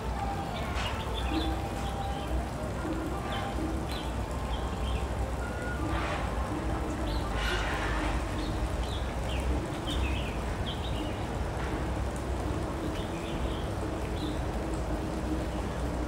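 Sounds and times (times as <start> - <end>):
small birds chirping: 3.3 - 5.8, 8.3 - 11.3, 12.8 - 14.5.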